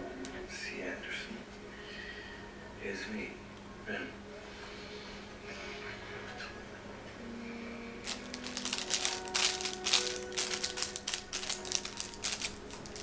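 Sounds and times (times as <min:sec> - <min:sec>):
plastic wrapper crinkling and tearing: 0:08.0 - 0:13.0.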